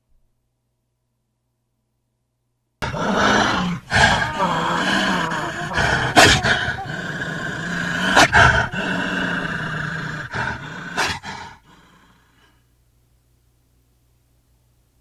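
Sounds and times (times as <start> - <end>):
werewolf growling and roaring: 2.8 - 12.0.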